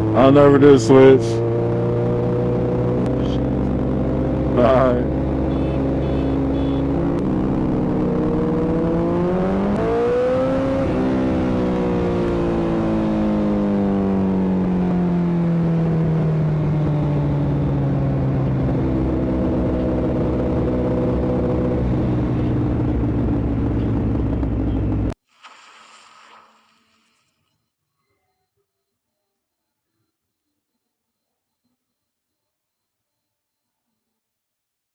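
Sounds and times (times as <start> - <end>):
motorcycle engine running: 0.0 - 25.2.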